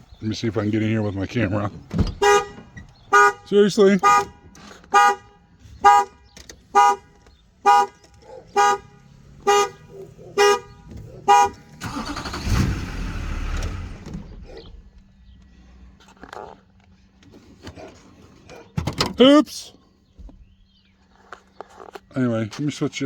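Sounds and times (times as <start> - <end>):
car horn honks: 2.0 - 12.6.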